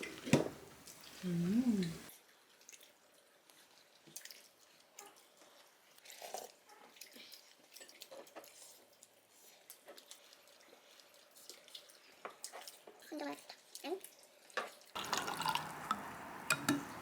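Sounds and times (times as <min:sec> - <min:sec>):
chewing: 0:00.8 - 0:17.0
utensils clicking and tapping: 0:15.0 - 0:17.0.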